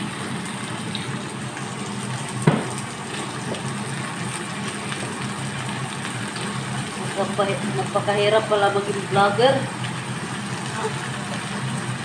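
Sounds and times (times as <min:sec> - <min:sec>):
chicken sizzling in pan: 0:00.0 - 0:12.0
sharp knock: 0:02.5 - 0:02.7.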